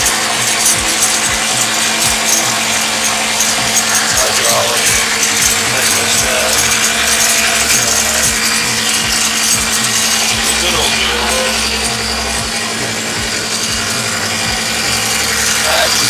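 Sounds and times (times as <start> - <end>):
old engine clattering: 0.0 - 16.0.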